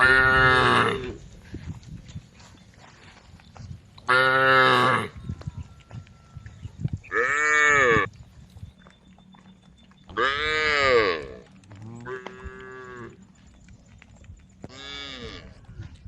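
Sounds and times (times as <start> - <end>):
cows mooing: 0.0 - 1.2, 4.0 - 8.2, 10.1 - 13.4, 14.6 - 16.0.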